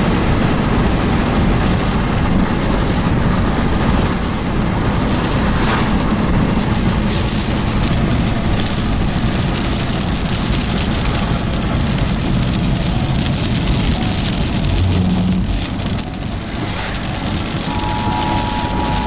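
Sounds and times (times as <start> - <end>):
rain on car: 0.0 - 19.0
road noise inside car: 0.0 - 19.0.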